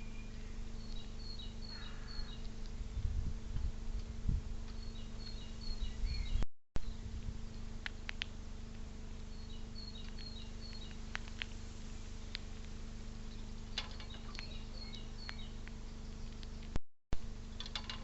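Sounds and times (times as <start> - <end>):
songbird chirping: 0.0 - 3.0, 4.6 - 16.8
electrical hum: 0.0 - 18.0
sharp clicks: 7.8 - 8.4, 10.0 - 11.6, 13.8 - 16.8.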